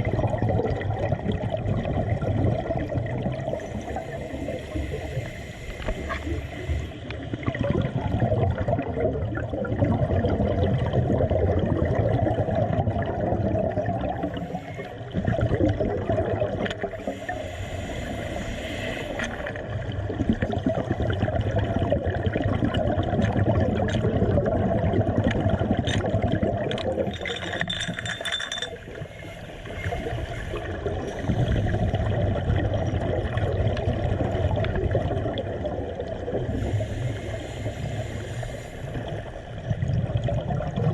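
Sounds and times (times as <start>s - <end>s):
water gurgling and sloshing: 0.0s - 40.9s
small clinks and knocks: 26.7s - 28.8s.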